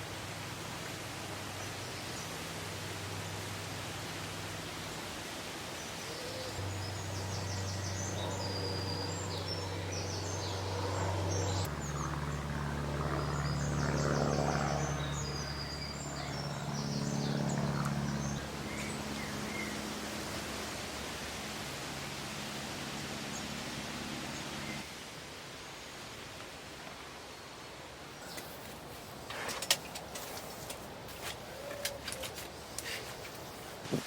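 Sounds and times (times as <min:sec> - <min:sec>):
songbirds singing: 0:05.7 - 0:20.0, 0:28.1 - 0:33.6
steady low hum: 0:05.7 - 0:24.8.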